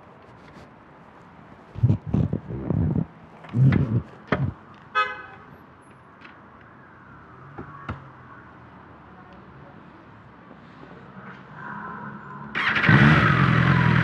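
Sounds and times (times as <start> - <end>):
vehicle horn toot: 5.0 - 5.5.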